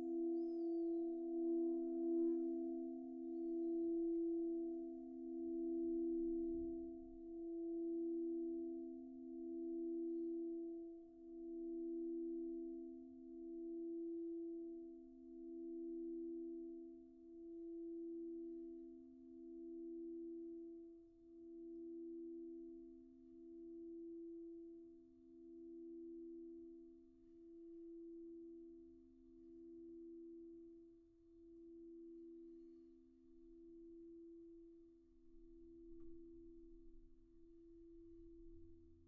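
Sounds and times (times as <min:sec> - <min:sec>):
singing bowl ringing: 0:00.0 - 0:03.6.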